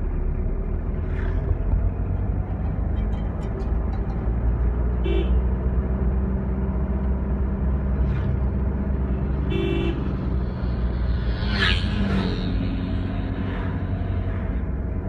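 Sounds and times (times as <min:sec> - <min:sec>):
road rumble: 0:00.0 - 0:15.0
car horn toots: 0:09.5 - 0:10.1.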